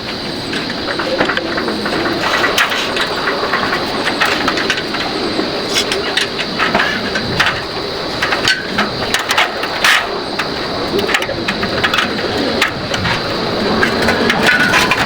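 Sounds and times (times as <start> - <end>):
mechanical running noise: 0.0 - 15.0.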